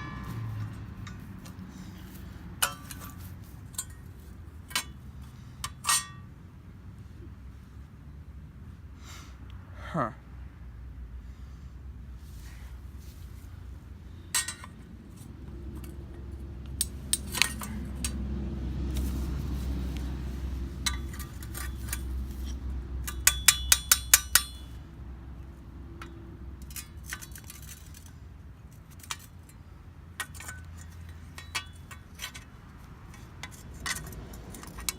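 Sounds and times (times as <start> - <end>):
hand tools clinking on metal: 0.0 - 5.0, 5.6 - 6.3, 14.3 - 18.2, 20.0 - 24.8, 26.0 - 34.9.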